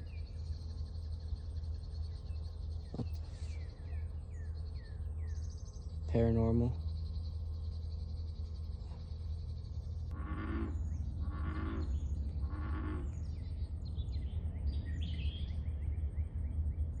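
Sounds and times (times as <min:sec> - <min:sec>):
raspy animal calls: 0:10.1 - 0:13.2.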